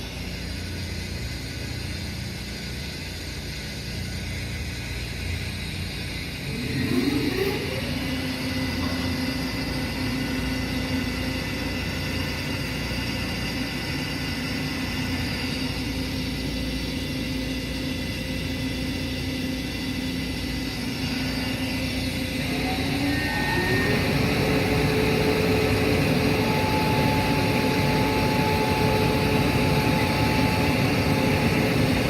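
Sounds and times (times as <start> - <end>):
faint high whine: 0.0 - 32.0.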